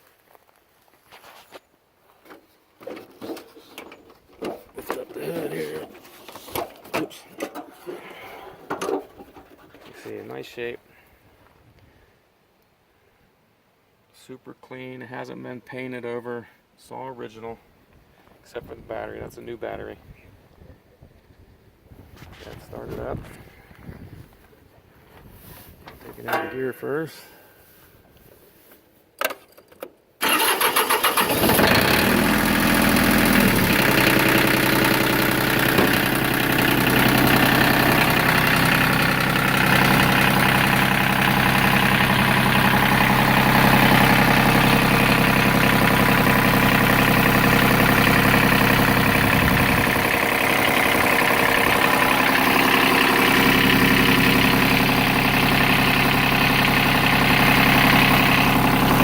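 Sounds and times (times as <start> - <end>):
tractor diesel engine idling: 30.2 - 59.0.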